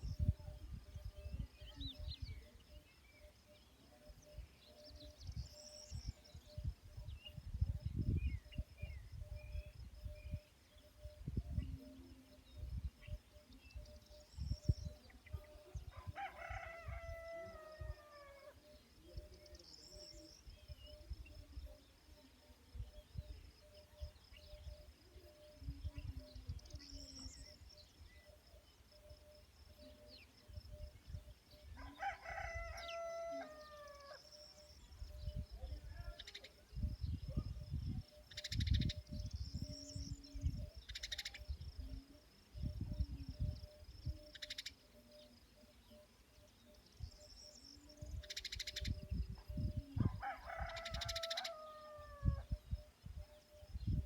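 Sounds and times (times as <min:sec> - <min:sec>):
insects chirring: 0:00.0 - 0:54.0
rooster crowing: 0:15.9 - 0:18.6, 0:31.8 - 0:34.2, 0:50.0 - 0:52.4.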